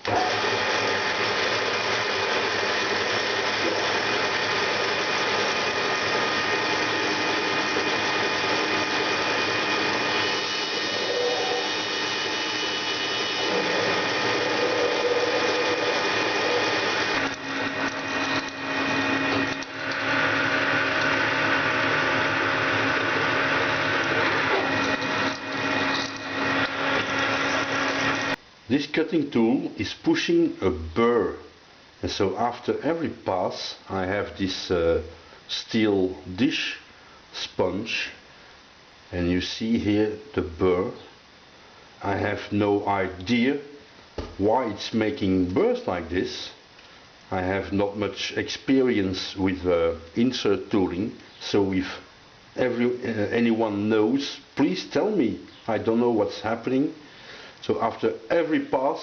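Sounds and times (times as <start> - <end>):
lathe machine whine: 0.0 - 28.4
metal cutting noise: 7.4 - 28.4.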